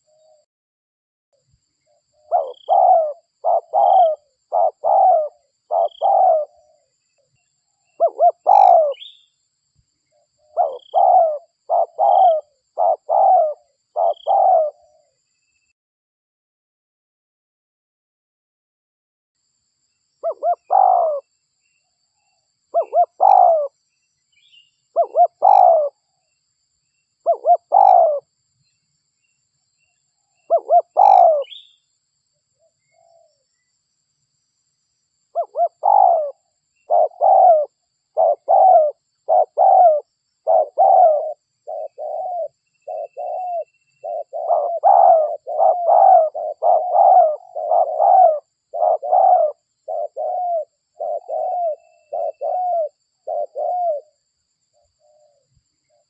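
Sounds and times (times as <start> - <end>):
dove cooing: 2.1 - 6.9, 7.9 - 9.2, 10.4 - 15.2, 20.2 - 21.3, 22.7 - 23.8, 24.9 - 26.0, 27.2 - 28.3, 30.5 - 31.7, 35.3 - 54.2.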